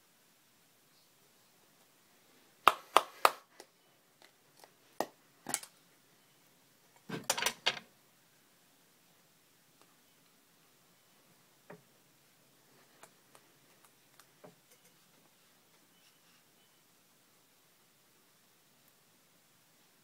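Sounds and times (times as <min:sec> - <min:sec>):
hard objects knocking and clicking: 0:07.0 - 0:07.8.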